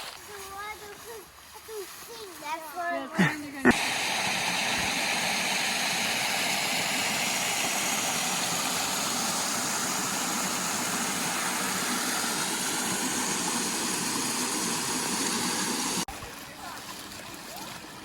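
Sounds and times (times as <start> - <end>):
creek water rushing: 3.6 - 18.0.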